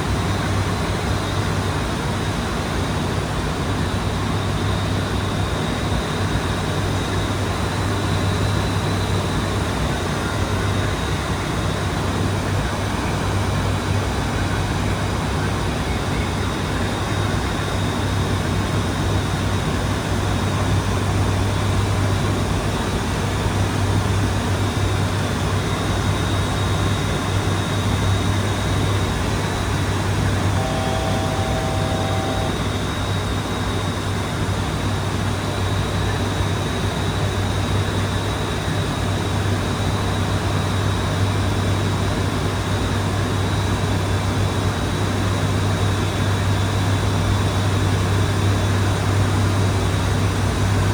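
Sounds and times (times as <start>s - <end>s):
turboprop engines droning: 0.0s - 50.9s
two-tone electronic chime: 30.5s - 32.7s.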